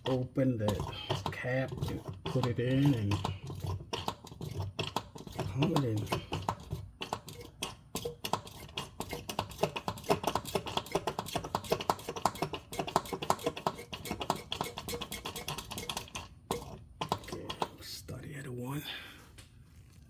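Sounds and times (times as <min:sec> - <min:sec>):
hand pump clicking: 0:00.0 - 0:17.7.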